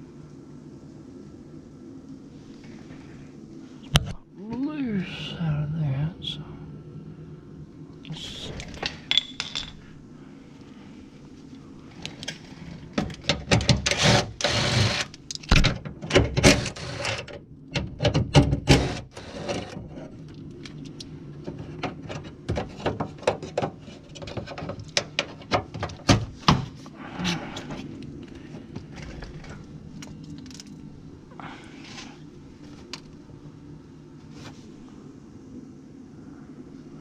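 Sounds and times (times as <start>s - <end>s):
steady low hum: 0.0s - 37.0s
tools and car parts clattering: 8.8s - 10.0s, 21.5s - 26.8s.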